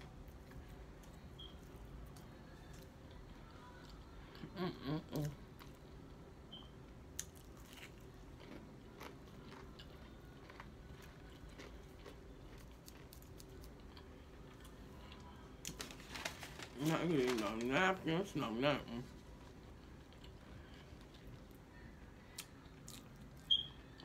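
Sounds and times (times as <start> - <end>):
person chewing crunchy food: 7.2 - 15.8, 19.6 - 21.6, 22.3 - 23.5.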